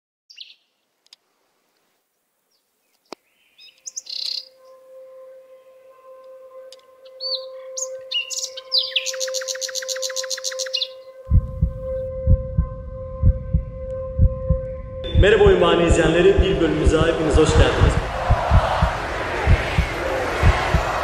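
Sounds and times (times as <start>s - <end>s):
small birds chirping: 0.3s - 0.8s, 2.5s - 4.7s, 7.0s - 11.1s.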